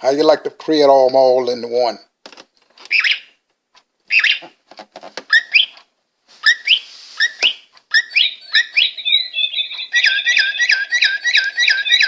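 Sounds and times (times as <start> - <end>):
electronic birdsong chirps: 6.5 - 12.0.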